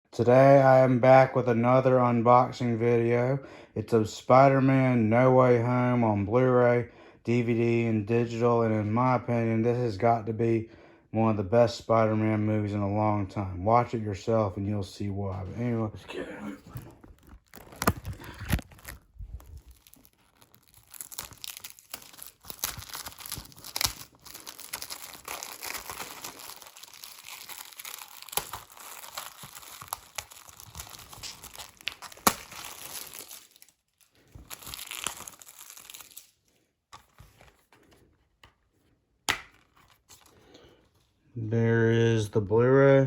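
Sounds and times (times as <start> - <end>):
plastic wrap crinkling: 16.6 - 38.5.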